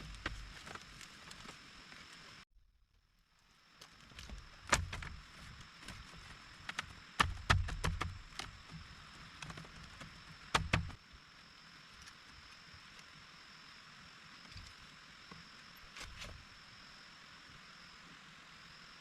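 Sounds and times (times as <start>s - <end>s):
sharp knocks and dull thuds: 4.2s - 11.0s.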